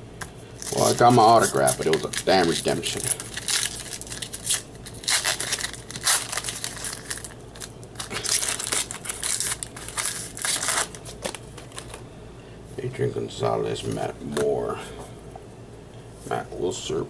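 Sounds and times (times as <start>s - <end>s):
foil wrapper tearing and crinkling: 0.6s - 12.0s.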